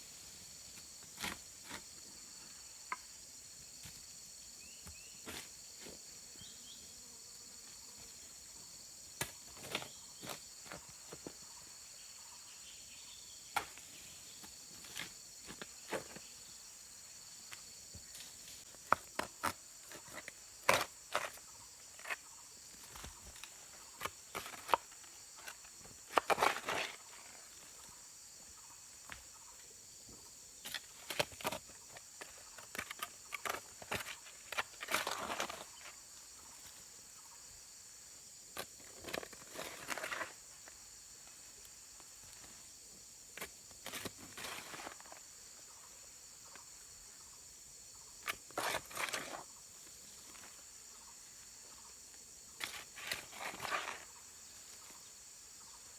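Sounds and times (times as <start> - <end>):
insects chirring: 0.0 - 55.9
rustling or scraping: 52.6 - 54.1.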